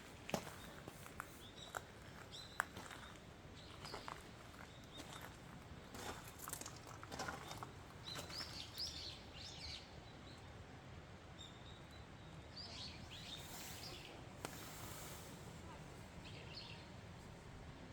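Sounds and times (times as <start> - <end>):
small birds chirping: 0.3 - 10.5, 11.4 - 14.8
soft rustles or steps: 13.3 - 15.6.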